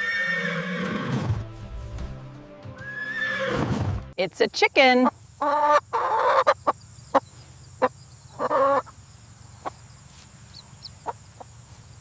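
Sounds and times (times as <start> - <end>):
chicken clucking: 5.0 - 9.0.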